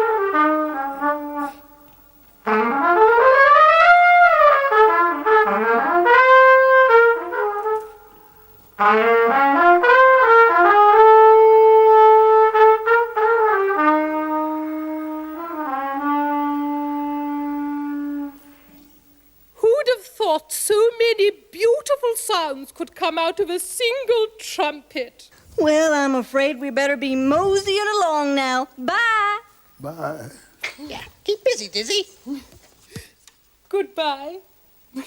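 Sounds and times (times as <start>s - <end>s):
solo jazz trumpet: 0.0s - 19.2s.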